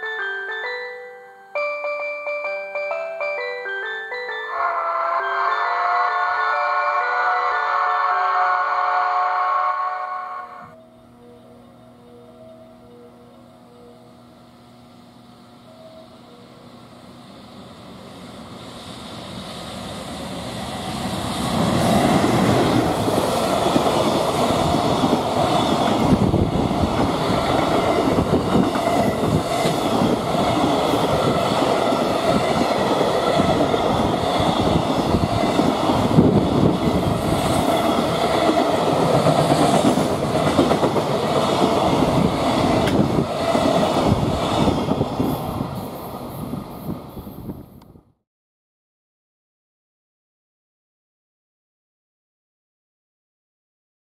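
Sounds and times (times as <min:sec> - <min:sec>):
freight train rumbling past: 0:14.8 - 0:47.8.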